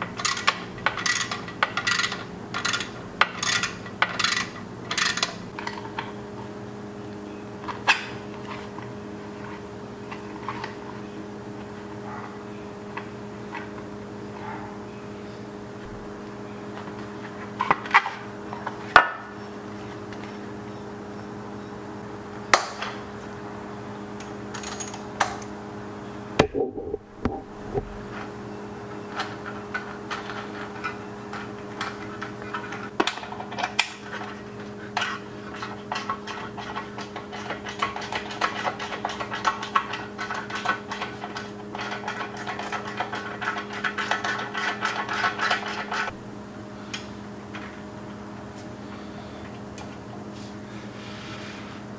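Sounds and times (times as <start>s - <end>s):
ratchet wrench clicking: 0.2s - 5.3s
low hum: 12.8s - 17.4s, 26.0s - 28.9s.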